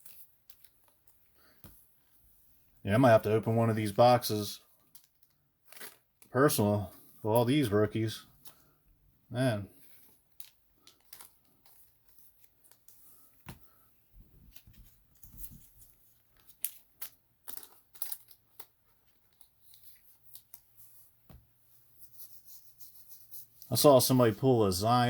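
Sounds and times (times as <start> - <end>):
trading cards clicking and rustling: 10.0 - 13.7, 14.5 - 21.4.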